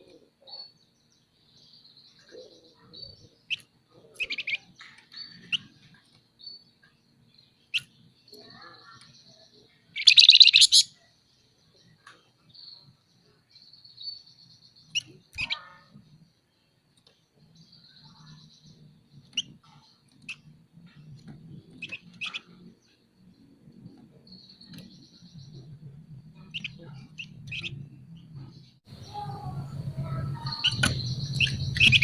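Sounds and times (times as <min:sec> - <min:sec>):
bird chirping: 0:00.0 - 0:32.0
faint low hum: 0:00.0 - 0:32.0
bird buzzing trills: 0:28.9 - 0:32.0.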